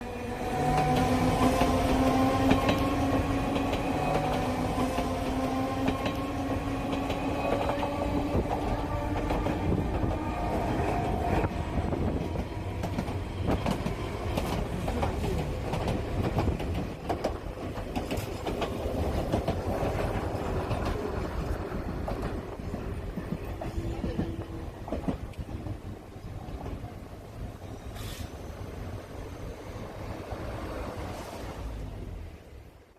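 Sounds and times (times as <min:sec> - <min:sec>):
electric train passing: 0:00.0 - 0:32.9
train wheels clicking over rail joints: 0:00.7 - 0:11.5, 0:12.2 - 0:25.9.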